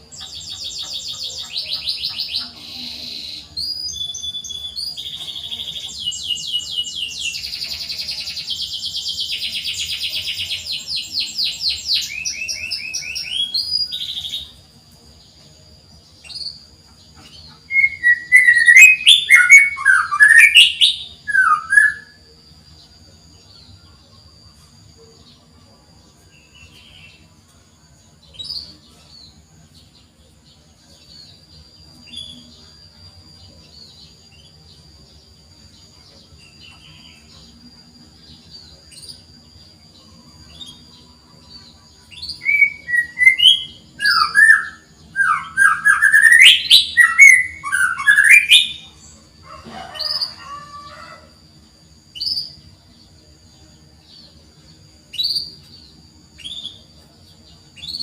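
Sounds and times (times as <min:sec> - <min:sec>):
canary chirping: 0:00.0 - 0:14.6
faint high whine: 0:00.0 - 0:58.0.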